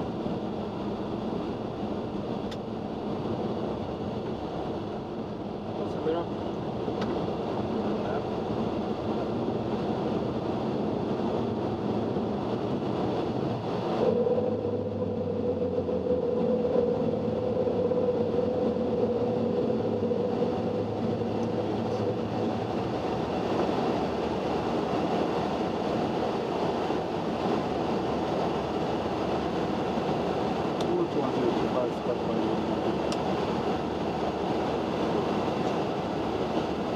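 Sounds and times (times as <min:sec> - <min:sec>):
aircraft engine noise: 0:00.0 - 0:36.9
rush of airflow: 0:00.0 - 0:36.9
steady hum: 0:07.5 - 0:36.9.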